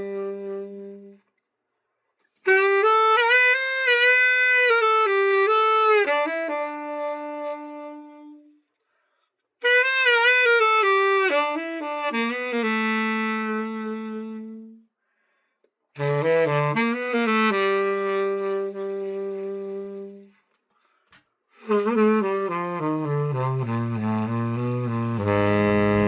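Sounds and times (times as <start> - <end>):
tenor saxophone phrases: 0.0 - 1.2, 2.4 - 8.6, 9.6 - 14.8, 16.0 - 20.4, 21.6 - 26.0.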